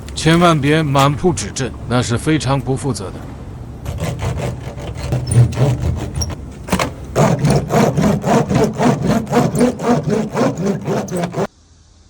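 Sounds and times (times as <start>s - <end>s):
hand roller rubbing strokes: 3.8s - 11.5s.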